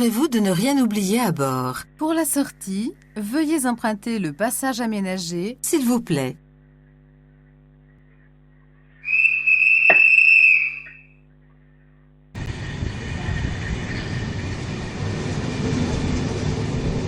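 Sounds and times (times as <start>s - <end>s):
whistle blast: 9.0s - 11.2s
train rumbling: 12.4s - 17.0s.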